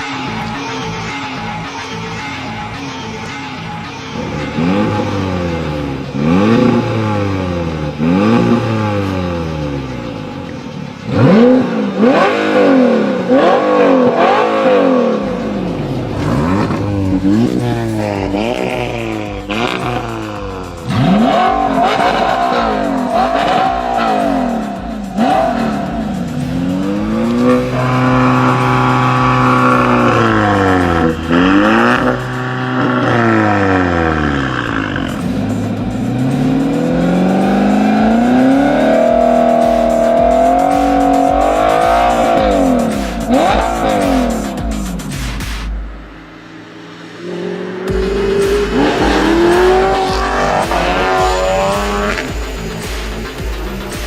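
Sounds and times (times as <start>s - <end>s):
sports car engine revving: 0.0s - 54.0s.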